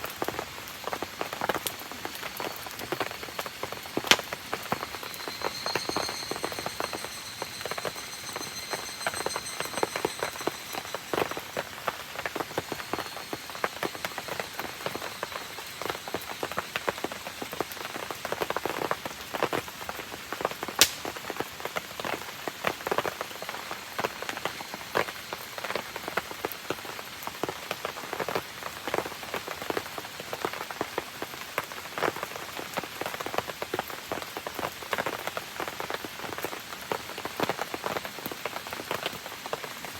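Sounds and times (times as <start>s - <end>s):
campfire crackling: 0.0s - 18.6s, 20.5s - 22.3s
rain pattering: 0.0s - 39.9s
faint high whistle: 2.4s - 17.5s
sharp pop: 20.8s - 21.2s.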